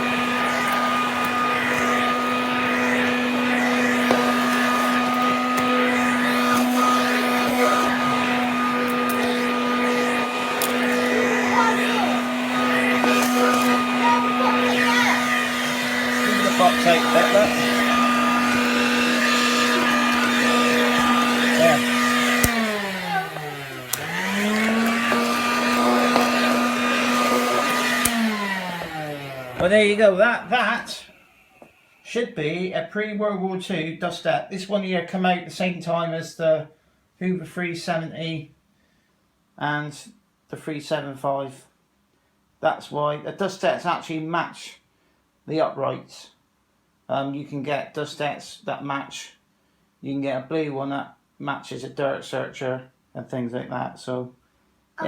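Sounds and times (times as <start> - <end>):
hand vacuum running: 0.0 - 32.0.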